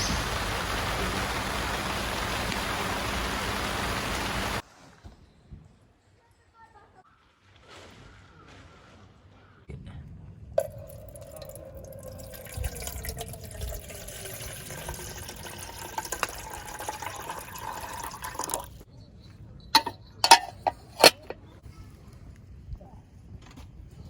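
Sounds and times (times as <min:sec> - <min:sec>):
liquid pouring into container: 0:10.6 - 0:18.8.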